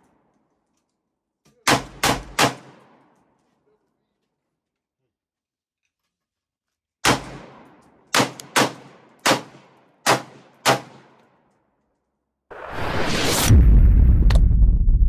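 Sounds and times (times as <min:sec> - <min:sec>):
gunshots with echo: 0:01.7 - 0:03.1, 0:07.0 - 0:11.2.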